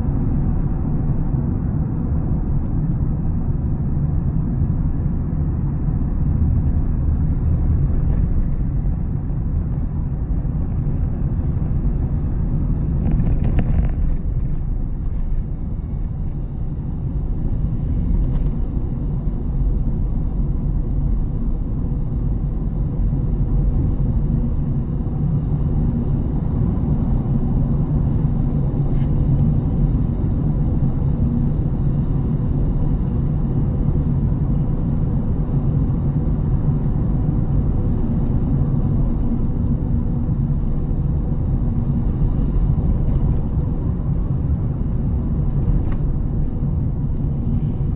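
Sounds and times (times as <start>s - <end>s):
road and tyre rumble: 0.0s - 47.9s.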